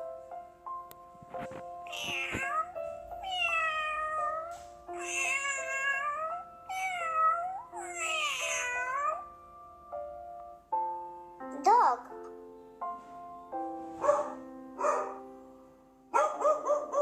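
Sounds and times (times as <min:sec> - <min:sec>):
background music: 0:00.0 - 0:17.0
cat meowing: 0:01.9 - 0:09.3.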